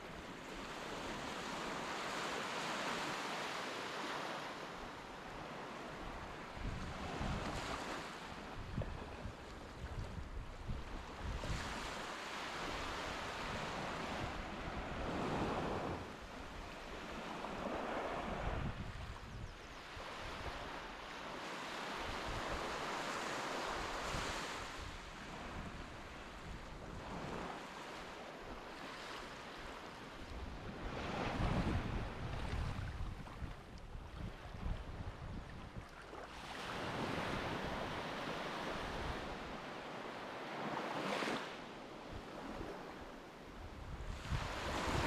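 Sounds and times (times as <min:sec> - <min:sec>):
wind buffeting microphone: 0:17.7 - 0:20.7, 0:30.4 - 0:35.9, 0:43.7 - 0:45.0
sea waves washing on beach: 0:19.9 - 0:45.0.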